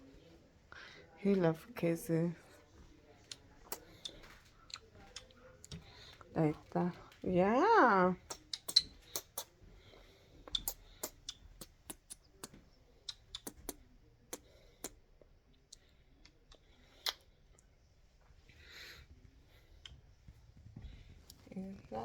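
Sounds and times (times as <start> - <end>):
bird beak clicking and tapping: 8.2 - 9.5, 10.5 - 13.8.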